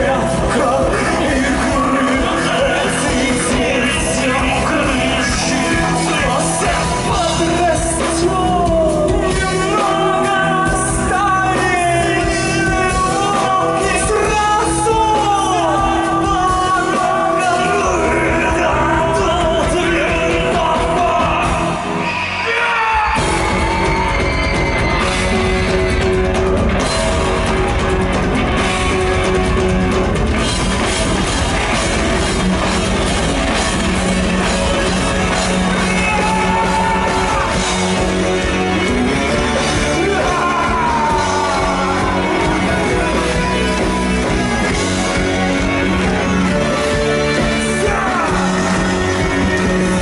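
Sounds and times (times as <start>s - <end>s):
person singing: 0.0s - 24.0s, 34.3s - 50.0s
heavy drums and bass: 0.0s - 50.0s
live rock band playing: 0.0s - 50.0s.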